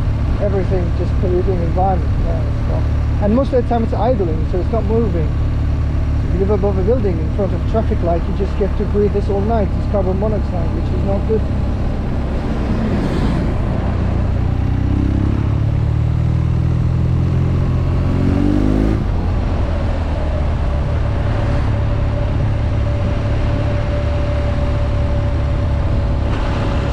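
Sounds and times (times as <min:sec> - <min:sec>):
motorcycle engine running: 0:00.0 - 0:26.9
rush of wind noise: 0:07.0 - 0:26.9.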